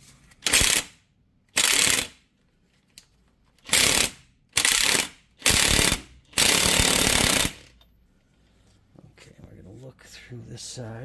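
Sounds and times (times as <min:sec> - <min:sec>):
impact wrench hammering: 0:03.7 - 0:07.7.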